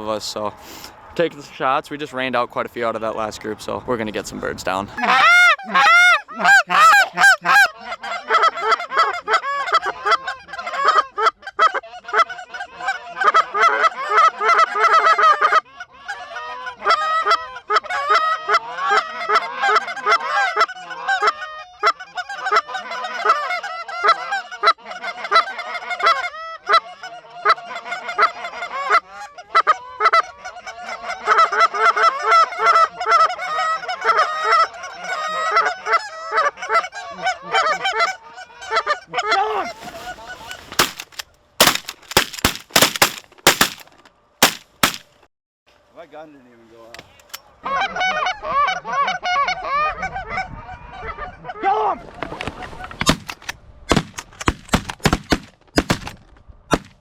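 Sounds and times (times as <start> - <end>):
geese honking: 5.0 - 9.1.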